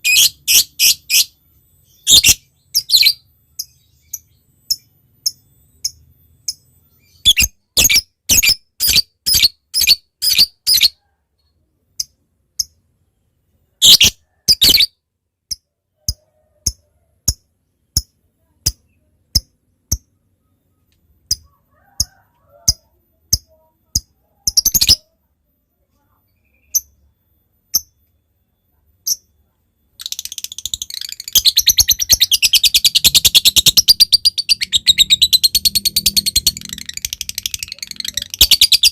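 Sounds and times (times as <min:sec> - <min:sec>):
bird chirping: 0:00.0 - 0:38.9
bird chattering trill: 0:30.0 - 0:38.9.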